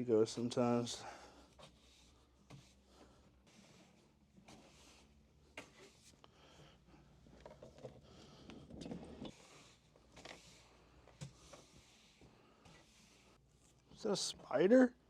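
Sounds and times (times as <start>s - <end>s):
objects being handled: 1.5s - 6.2s, 7.2s - 14.0s.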